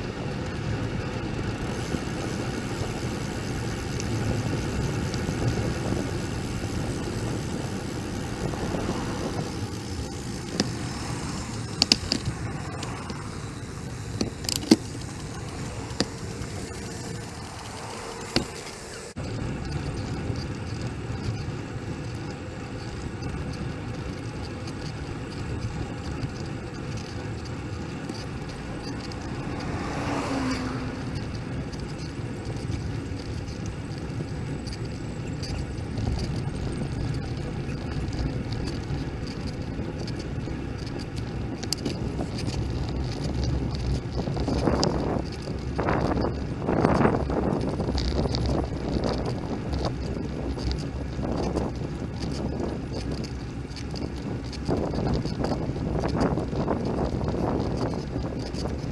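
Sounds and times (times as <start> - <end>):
road noise: 0.0 - 58.9
wind buffeting: 0.0 - 58.9
vehicle passing: 1.0 - 20.1, 27.0 - 34.2.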